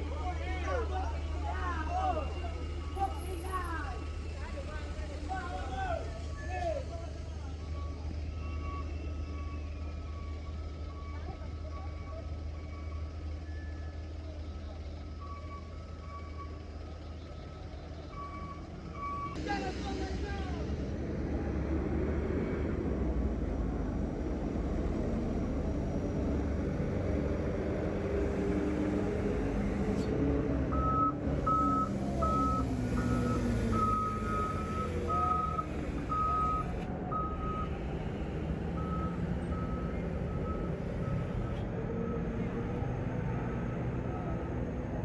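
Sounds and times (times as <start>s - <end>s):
heavy truck engine running: 0.0s - 45.0s
reversing alarm beeping: 7.5s - 14.2s, 15.2s - 16.8s, 18.2s - 19.4s, 30.7s - 37.8s, 38.7s - 41.5s.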